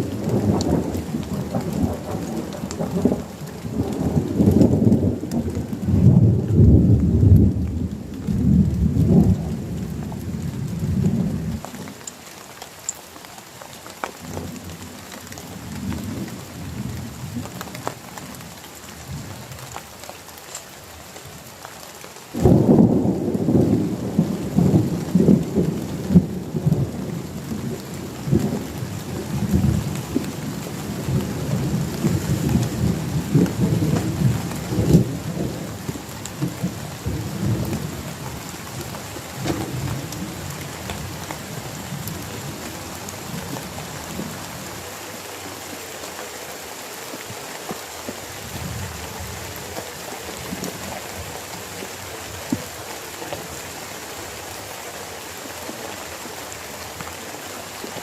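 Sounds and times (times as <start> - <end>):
thunder clap rolling: 0.0 - 11.9, 22.3 - 44.6
heavy rain: 0.0 - 58.0.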